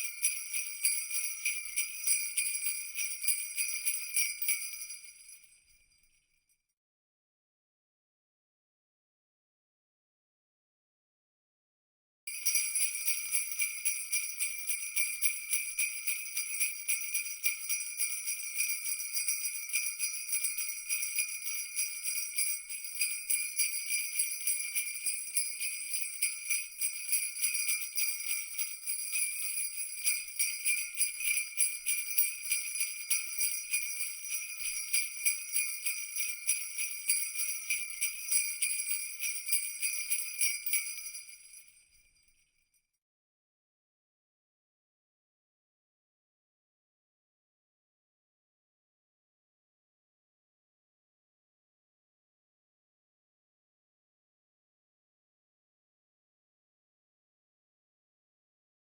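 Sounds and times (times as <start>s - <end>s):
jingle bells shaken: 0.0s - 5.6s, 12.3s - 42.1s.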